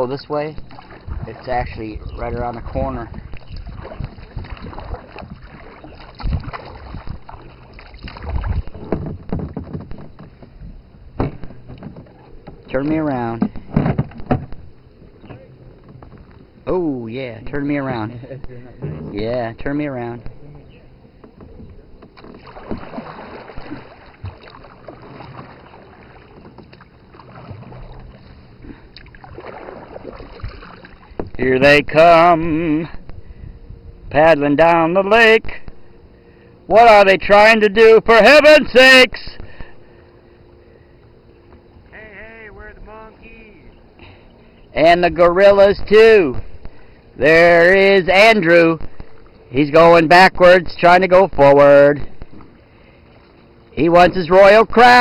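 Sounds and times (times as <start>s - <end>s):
paddle strokes splashing water: 0.0s - 16.7s, 20.3s - 31.5s, 52.0s - 53.9s
low thumps: 0.6s - 16.7s
knocks: 8.8s - 10.6s.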